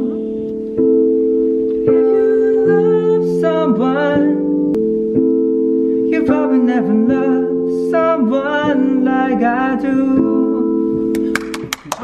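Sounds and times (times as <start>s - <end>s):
sustained chords: 0.0s - 11.7s
man singing pop ballad: 1.9s - 4.5s, 6.1s - 11.1s.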